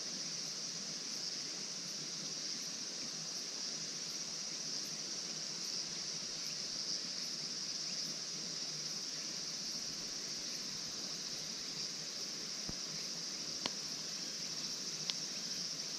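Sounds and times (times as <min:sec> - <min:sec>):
insect chirring: 0:00.1 - 0:15.9
faint high tick: 0:15.0 - 0:15.2.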